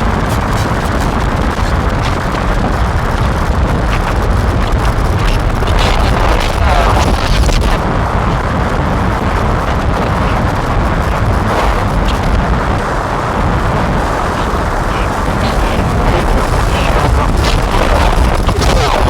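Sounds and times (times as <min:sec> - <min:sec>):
distorted synthesizer noise drone: 0:00.0 - 0:19.0.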